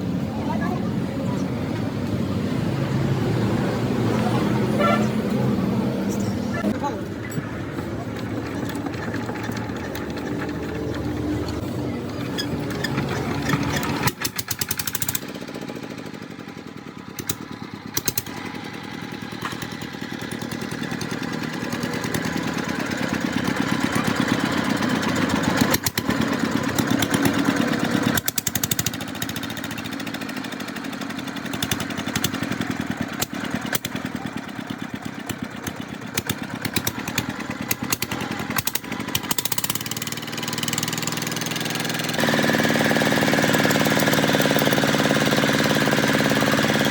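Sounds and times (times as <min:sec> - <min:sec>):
diesel engine knocking: 0:00.0 - 0:46.9.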